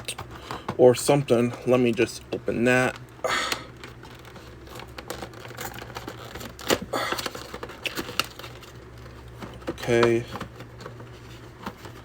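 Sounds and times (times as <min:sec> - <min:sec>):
packaging clicking and crinkling: 0:02.8 - 0:12.0.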